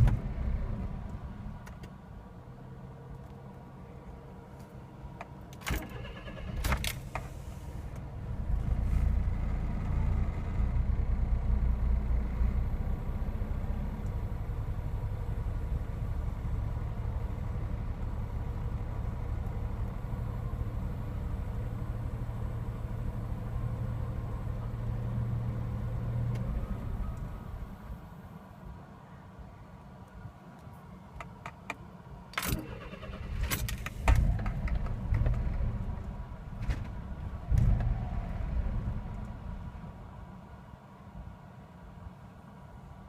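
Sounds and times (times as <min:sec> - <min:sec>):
small engine starting and idling: 0:05.7 - 0:07.6, 0:32.4 - 0:34.6.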